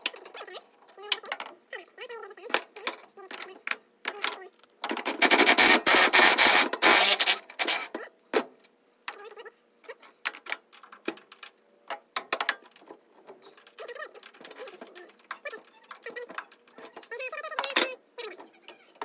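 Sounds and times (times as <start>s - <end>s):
rapid mechanical clicking of tools: 4.3s - 8.0s.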